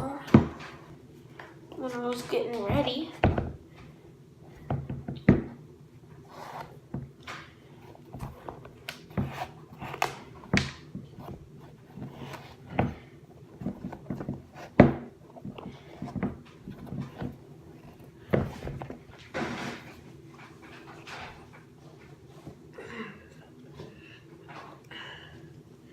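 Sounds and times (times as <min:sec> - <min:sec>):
faint steady hum: 0:00.0 - 0:25.9
footwear being pulled on: 0:06.3 - 0:06.8.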